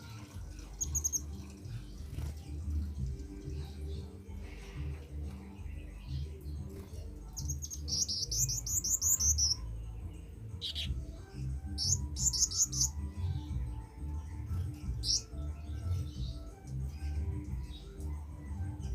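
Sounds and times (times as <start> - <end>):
bird singing high chirps: 0.4 - 2.3, 5.6 - 18.0.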